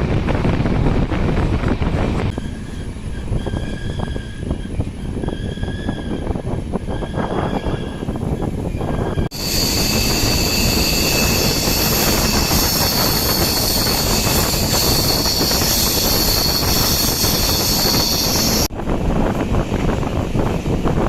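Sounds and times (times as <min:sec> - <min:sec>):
rush of wind: 0:00.0 - 0:21.0
train rumbling along track: 0:00.0 - 0:21.0
high whine: 0:09.3 - 0:18.7.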